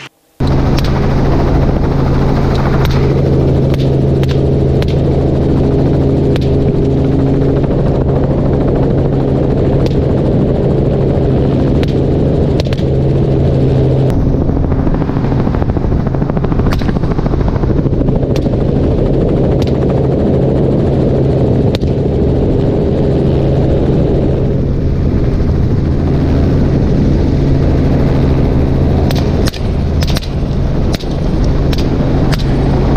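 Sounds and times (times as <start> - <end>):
helicopter droning: 0.0 - 32.9
rifle shots: 29.1 - 32.6.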